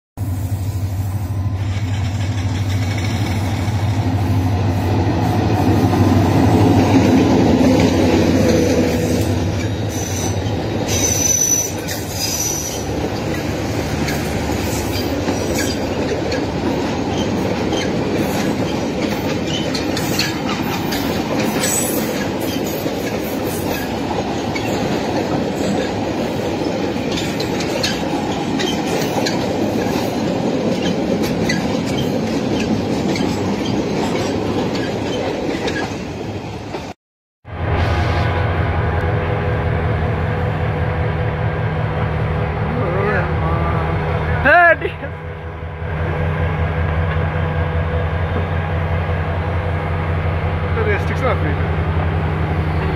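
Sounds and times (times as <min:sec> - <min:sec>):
train wheels clickety-clack: 0:01.6 - 0:37.0
wheel squeal: 0:09.6 - 0:12.9
locomotive engine droning: 0:37.5 - 0:52.9.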